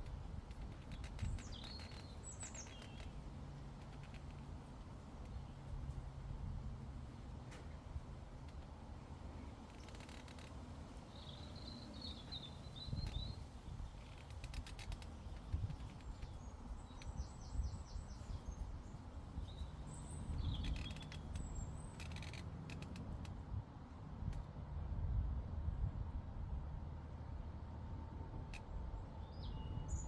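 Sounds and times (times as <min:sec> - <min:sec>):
wind rumble on microphone: 0:00.0 - 0:30.0
small birds chirping: 0:00.5 - 0:03.2, 0:09.7 - 0:23.0
sharp clicks: 0:20.5 - 0:23.4.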